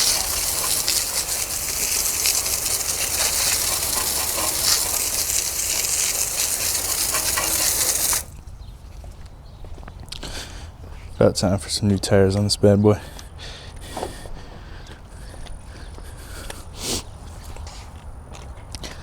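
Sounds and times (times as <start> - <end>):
water spraying onto car: 0.0 - 8.4.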